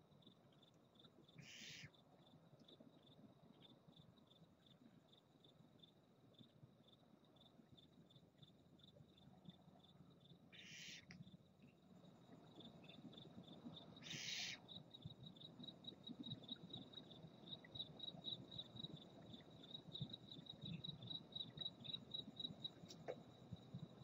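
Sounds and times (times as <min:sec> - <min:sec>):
cricket chirping: 0:00.0 - 0:24.0
barn owl hiss: 0:01.4 - 0:01.9, 0:10.6 - 0:11.0, 0:14.0 - 0:14.6.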